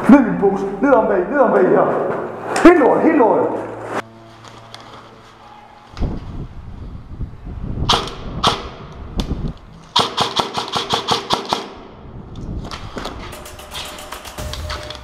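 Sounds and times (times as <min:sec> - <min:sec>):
airsoft guns firing: 0:07.9 - 0:08.8, 0:10.0 - 0:11.8.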